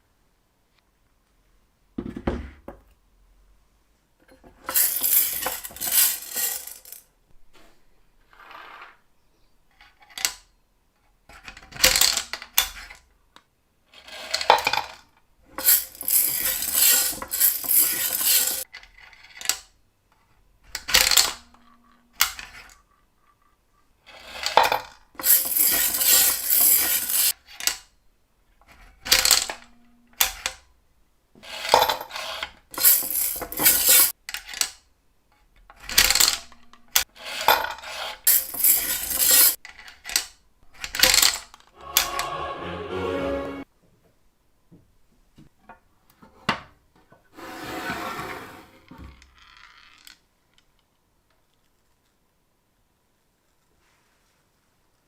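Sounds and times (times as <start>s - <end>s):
coins clinking and rattling: 4.7s - 7.0s, 15.6s - 18.6s, 25.2s - 27.3s, 32.8s - 34.1s, 38.3s - 39.6s.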